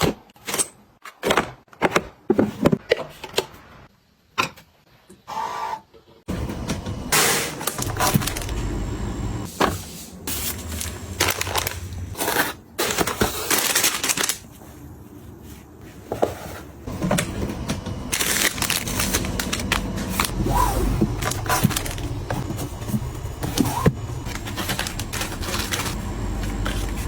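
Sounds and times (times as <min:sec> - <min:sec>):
packaging crinkling and rustling: 0:07.6 - 0:08.6, 0:10.3 - 0:27.0.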